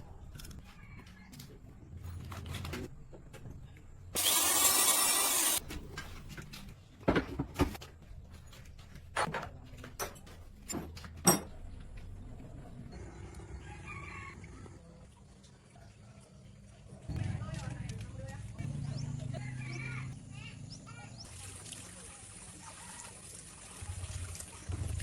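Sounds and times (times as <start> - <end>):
rooster crowing: 13.2 - 14.9.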